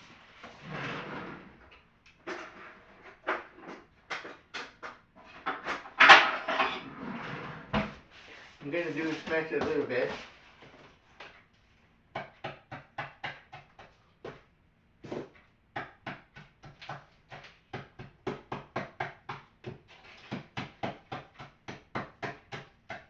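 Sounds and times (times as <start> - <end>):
cookies being pounded: 3.3 - 6.6, 12.1 - 23.0.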